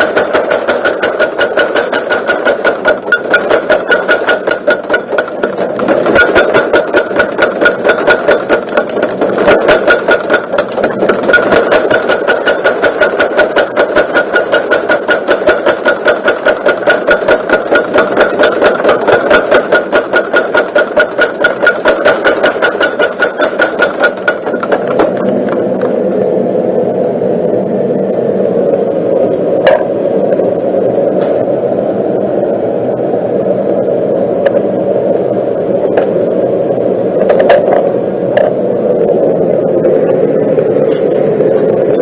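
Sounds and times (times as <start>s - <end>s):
power hammer striking rapidly: 0.0s - 25.3s
drive motor humming: 0.0s - 42.0s.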